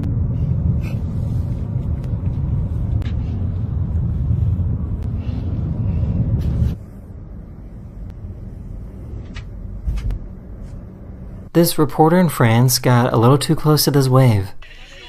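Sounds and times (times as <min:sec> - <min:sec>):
vehicle driving rumble: 0:00.0 - 0:11.5.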